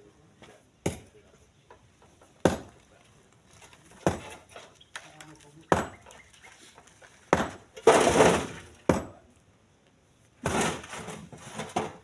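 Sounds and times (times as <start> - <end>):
stones thrown into truck bed: 7.3 - 9.2, 10.4 - 12.0.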